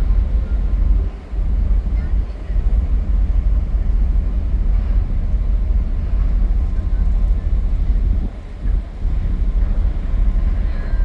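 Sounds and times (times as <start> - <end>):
ferry engine low rumble: 0.0 - 11.0.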